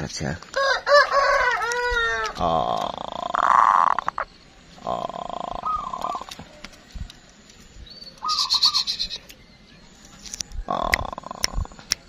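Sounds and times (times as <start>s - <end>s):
birds calling: 0.0s - 12.0s
bright chirping bird call: 1.6s - 6.6s, 7.7s - 11.9s.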